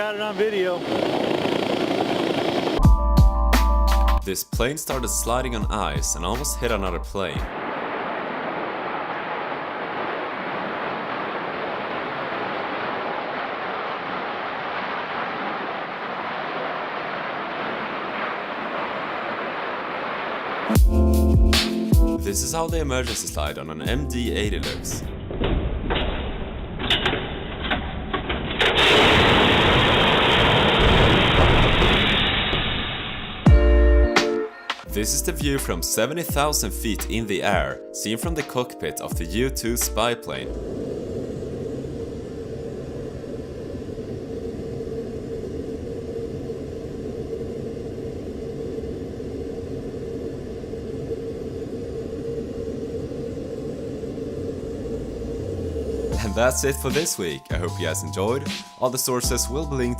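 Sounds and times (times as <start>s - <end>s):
aircraft cockpit engine drone: 0.0s - 4.2s, 34.8s - 58.6s
evacuation slide inflating hiss: 0.4s - 2.8s.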